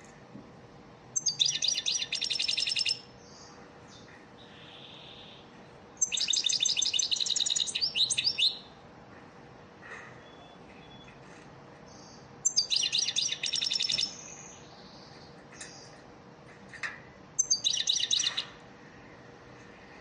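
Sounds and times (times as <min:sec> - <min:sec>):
faint steady hum: 0:00.0 - 0:20.0
goldfinch twittering trills: 0:01.2 - 0:03.0, 0:06.0 - 0:08.6, 0:12.0 - 0:14.4, 0:17.4 - 0:18.5.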